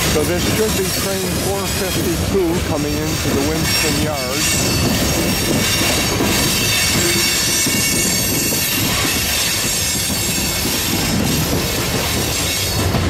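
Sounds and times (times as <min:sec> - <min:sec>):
freight train wheels rumbling: 0:00.0 - 0:13.0
high wheel squeal: 0:01.0 - 0:12.9.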